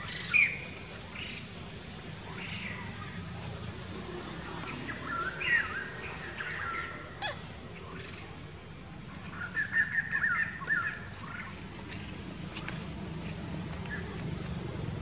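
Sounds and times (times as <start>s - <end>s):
birds chirping and warbling: 0.0s - 15.0s
downward-sweeping bird call: 4.6s - 8.4s, 9.2s - 11.6s.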